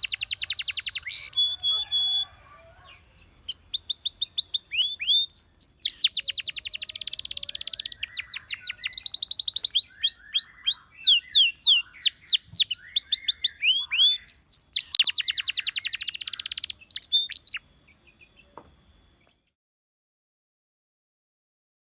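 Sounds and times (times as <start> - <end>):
canary singing: 0.0 - 19.5.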